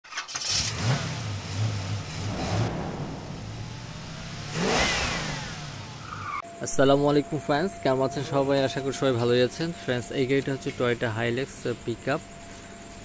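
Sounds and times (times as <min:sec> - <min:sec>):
car engine revving: 0:00.4 - 0:06.4
rising whoosh: 0:01.5 - 0:06.5.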